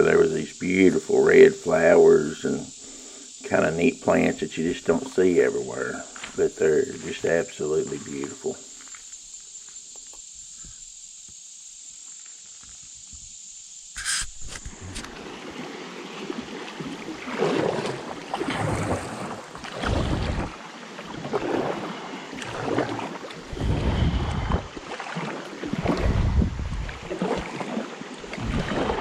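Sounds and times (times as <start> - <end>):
insects buzzing: 0.0 - 29.0
paddle splashing water: 14.0 - 29.0
wind buffeting microphone: 23.5 - 24.8, 25.7 - 27.1.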